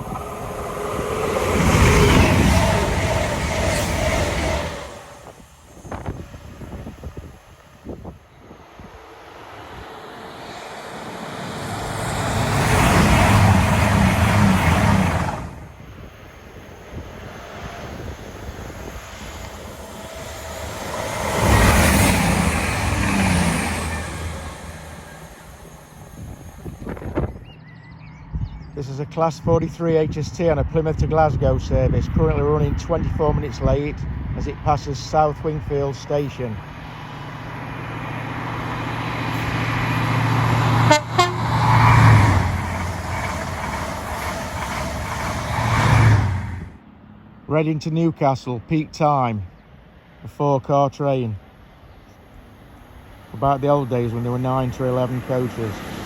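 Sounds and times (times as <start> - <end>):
diesel train passing at speed: 0.0 - 48.0, 49.4 - 50.4, 51.4 - 56.0
train horn notes: 40.8 - 42.4.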